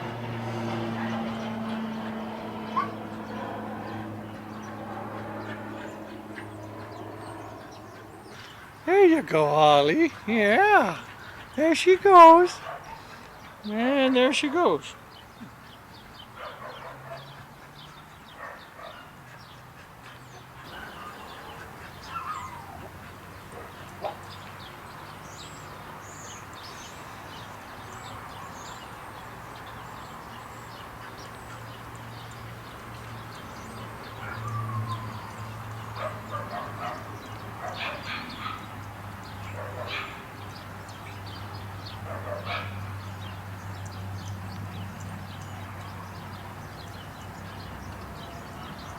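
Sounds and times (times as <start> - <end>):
dogs yipping barking and whining: 0.8 - 8.8, 16.4 - 24.3, 33.7 - 41.3, 42.0 - 43.0.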